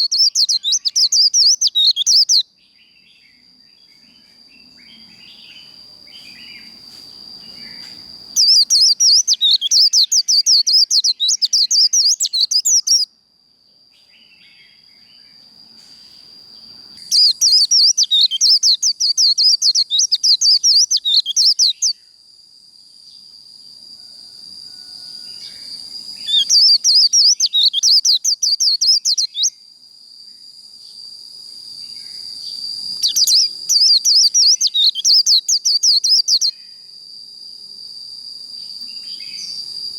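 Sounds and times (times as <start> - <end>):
bird twittering song: 0.0 - 13.1, 13.9 - 22.1, 25.4 - 29.6, 31.8 - 36.7.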